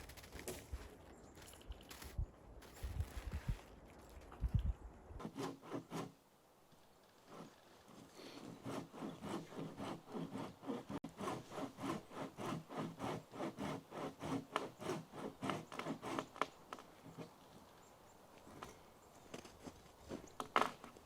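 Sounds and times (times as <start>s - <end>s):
hand saw cutting wood: 5.2s - 6.2s, 7.3s - 17.3s.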